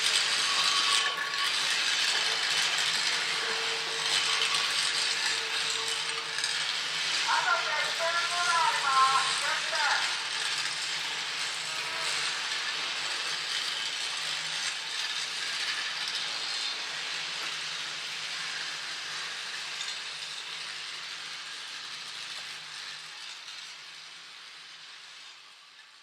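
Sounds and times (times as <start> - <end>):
electric train rattling: 0.0 - 26.0.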